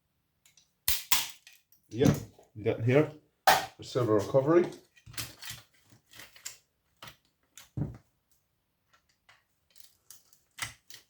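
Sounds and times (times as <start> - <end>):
small metal parts handled: 4.6 - 8.0, 8.9 - 11.0.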